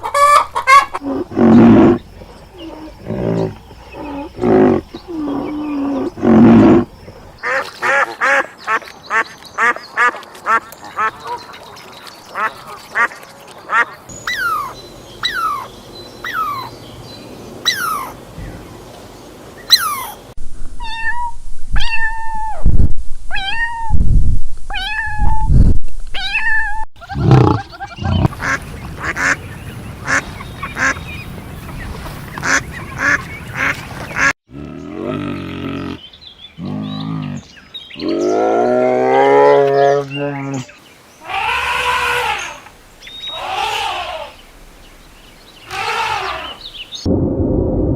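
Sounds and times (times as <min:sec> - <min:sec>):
repeated pitched animal calls: 0:27.0 - 0:29.4
long wavering calls: 0:39.6 - 0:44.4.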